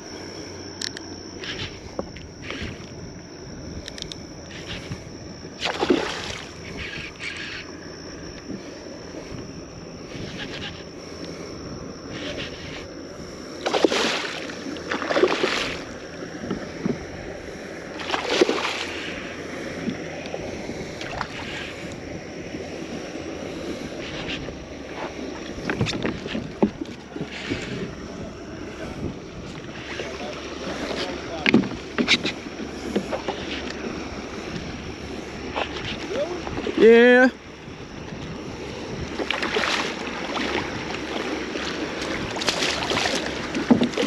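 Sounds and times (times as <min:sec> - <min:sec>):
water lapping at hull: 0:00.0 - 0:44.0
fish splashing at surface: 0:05.6 - 0:06.5, 0:13.6 - 0:15.8, 0:18.0 - 0:19.0
wind on microphone: 0:19.7 - 0:36.9, 0:37.6 - 0:44.0.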